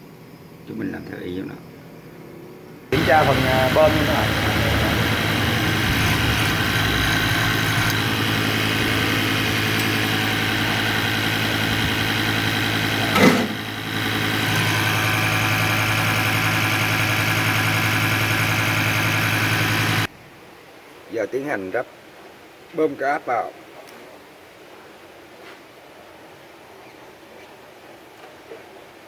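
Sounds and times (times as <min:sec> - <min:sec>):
pump test bench droning: 0:03.0 - 0:20.1.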